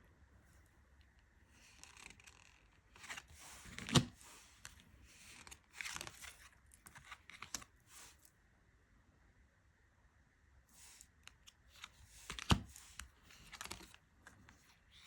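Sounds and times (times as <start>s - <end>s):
cards rustling and sliding: 1.5s - 8.3s, 10.8s - 15.0s.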